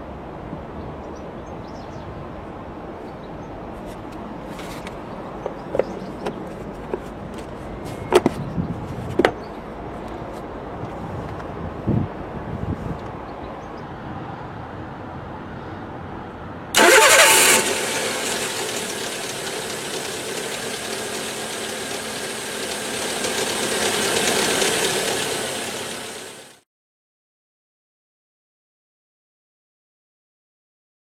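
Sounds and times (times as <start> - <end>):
engine starting and running: 16.8 - 26.6.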